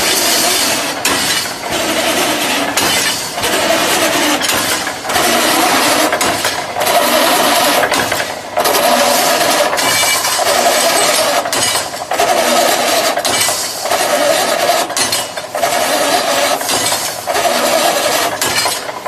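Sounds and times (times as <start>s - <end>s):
welding machine mechanical din: 0.0s - 19.0s.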